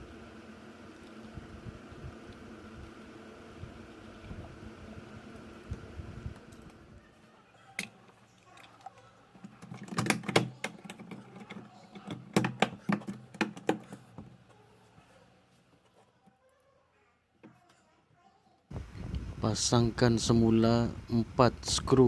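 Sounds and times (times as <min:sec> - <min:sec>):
steady background hum: 0:00.0 - 0:22.0
plastic parts clicking and clacking: 0:08.6 - 0:14.2.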